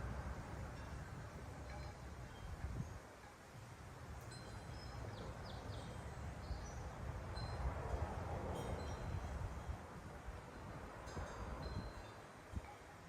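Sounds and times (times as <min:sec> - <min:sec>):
small birds chirping: 0:04.8 - 0:06.8.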